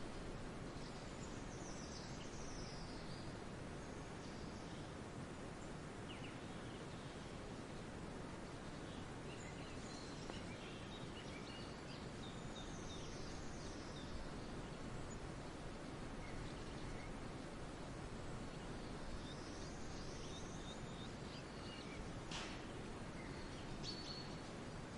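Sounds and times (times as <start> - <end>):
steady background hiss: 0.0 - 24.9
distant bird chirps: 18.2 - 24.5.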